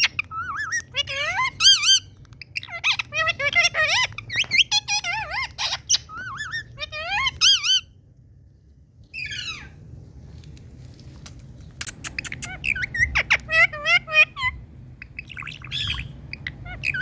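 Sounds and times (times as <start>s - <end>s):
parakeet chattering: 0.0s - 7.9s, 11.8s - 17.0s.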